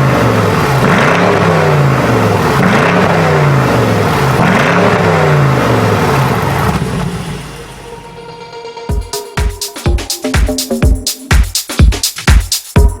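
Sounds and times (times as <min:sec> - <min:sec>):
car engine revving: 0:00.0 - 0:08.7.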